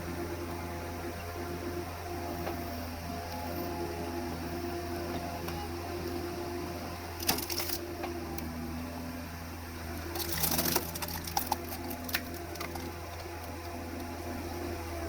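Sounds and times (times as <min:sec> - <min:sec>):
wood cracking and splintering: 0:07.2 - 0:07.8, 0:10.0 - 0:13.7.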